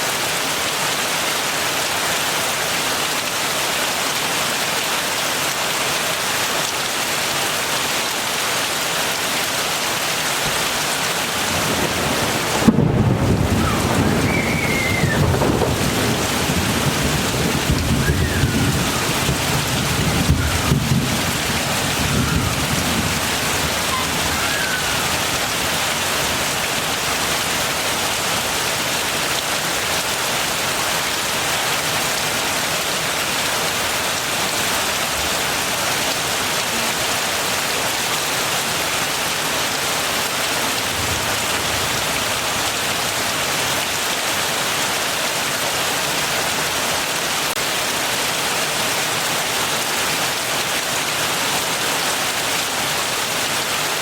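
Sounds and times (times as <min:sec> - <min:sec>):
heavy rain: 0:00.0 - 0:54.0
low rumble of thunder: 0:11.4 - 0:25.0.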